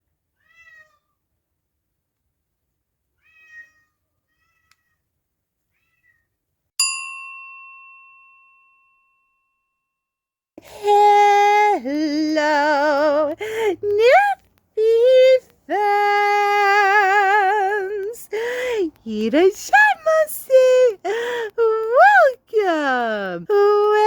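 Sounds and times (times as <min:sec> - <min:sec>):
cat meowing softly: 0:00.4 - 0:01.2, 0:03.2 - 0:05.0, 0:05.7 - 0:06.4
bright ding: 0:06.8 - 0:09.7.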